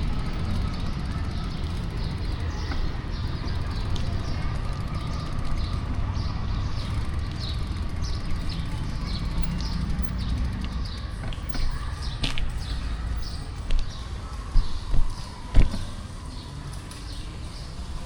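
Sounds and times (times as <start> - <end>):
street traffic rumble: 0.0 - 18.0
wind: 0.0 - 18.0.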